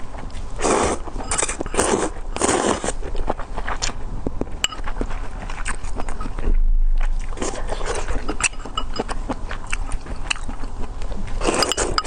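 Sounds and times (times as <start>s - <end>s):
noodles being slurped: 0.6s - 3.9s
chewing with small clicks: 1.1s - 6.4s, 7.1s - 12.0s.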